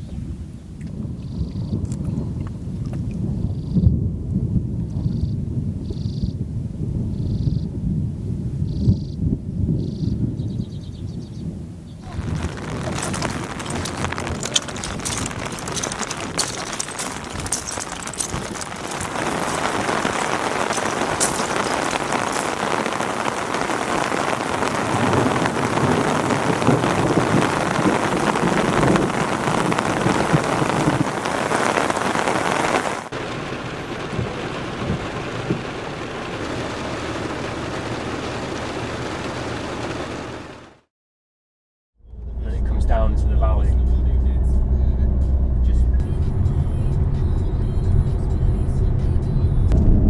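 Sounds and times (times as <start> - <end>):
heavy rain falling: 12.0 - 40.9.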